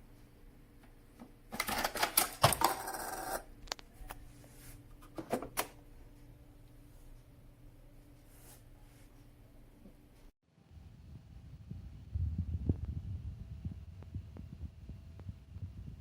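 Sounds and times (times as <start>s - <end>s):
hard objects rattling and clicking: 1.6s - 3.4s.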